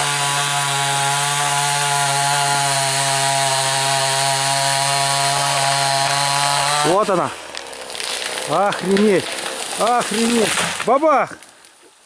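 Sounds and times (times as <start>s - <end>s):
chainsaw running at high revs: 0.0s - 7.4s.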